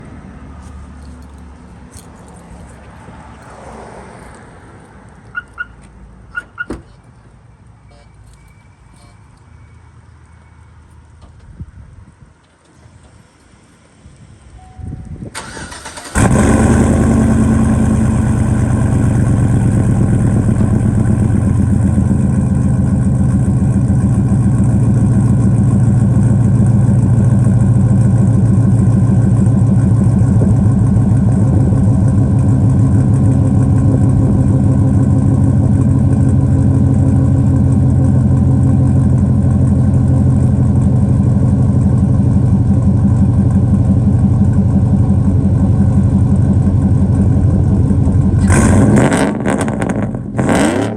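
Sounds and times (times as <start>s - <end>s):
engine starting and idling: 15.3s - 26.9s.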